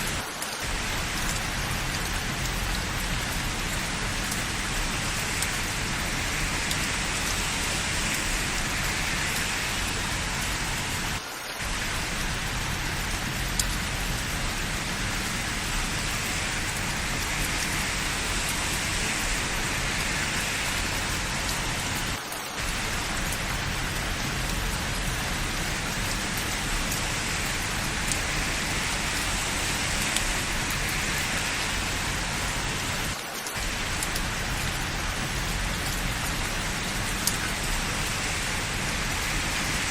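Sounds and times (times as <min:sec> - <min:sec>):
heavy rain on hard surfaces: 0:00.0 - 0:39.9.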